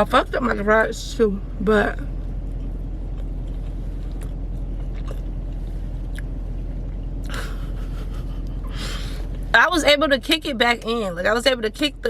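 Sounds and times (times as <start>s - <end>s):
car engine and fan hum: 0.0s - 12.0s.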